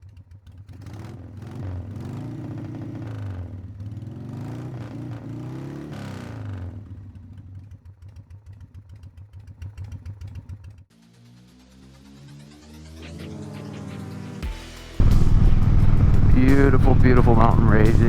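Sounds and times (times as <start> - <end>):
motorcycle engine revving: 0.0 - 10.9, 15.0 - 18.0.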